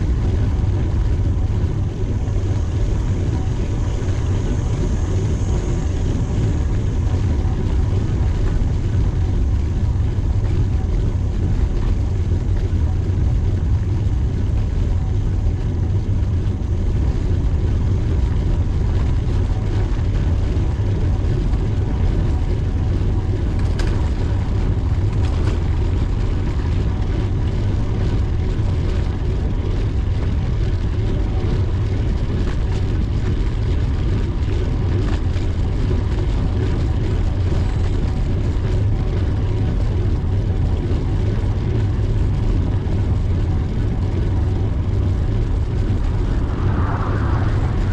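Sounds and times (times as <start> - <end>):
wind buffeting microphone: 0.0 - 47.9
road noise: 43.4 - 47.9.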